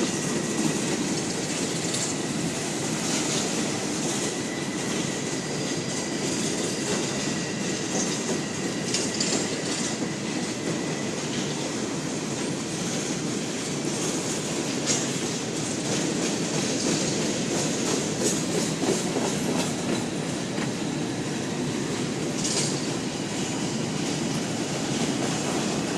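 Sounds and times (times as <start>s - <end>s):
train wheels rumbling on rail: 0.0s - 25.9s
clicks at rail joints: 14.8s - 15.2s, 22.4s - 23.0s.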